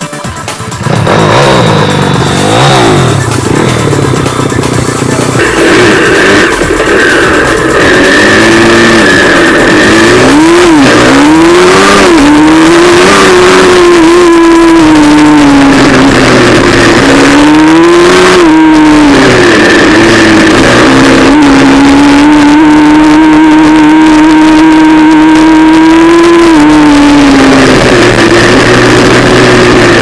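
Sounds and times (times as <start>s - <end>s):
motorbike engine revving: 0.0s - 30.0s.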